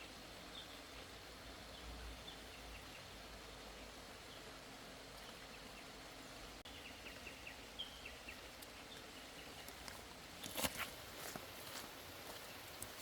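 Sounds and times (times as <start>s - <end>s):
low hiss: 0.0s - 13.0s
crackling rustle: 8.3s - 13.0s.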